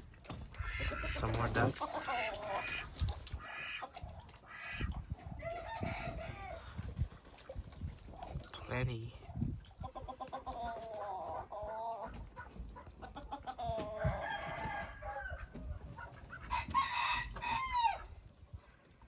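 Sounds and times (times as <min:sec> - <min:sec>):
rooster crowing: 0:13.9 - 0:15.4, 0:16.5 - 0:18.1.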